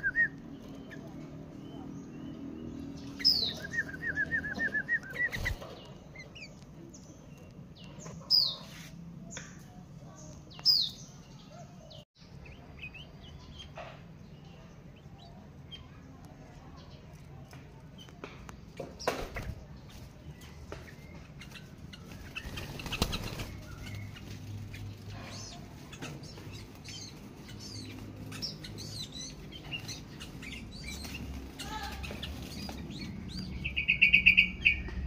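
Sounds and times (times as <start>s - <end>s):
bulbuls calling: 0.0s - 15.9s, 18.8s - 35.0s
faint chirps and clicks: 3.0s - 8.5s, 15.2s - 19.2s.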